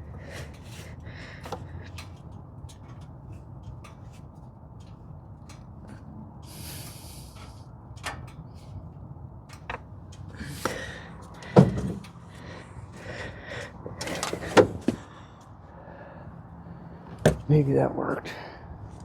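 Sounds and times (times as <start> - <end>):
short hiss: 6.5 - 7.6.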